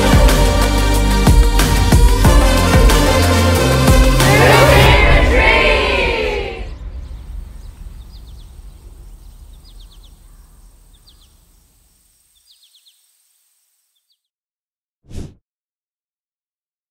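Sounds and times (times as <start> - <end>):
outdoor ambience: 4.3 - 14.2
small bird chirping: 6.8 - 14.3.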